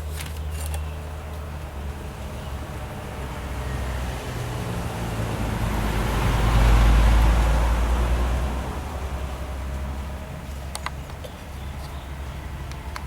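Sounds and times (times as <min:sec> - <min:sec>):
vehicle passing by: 0:01.5 - 0:10.7.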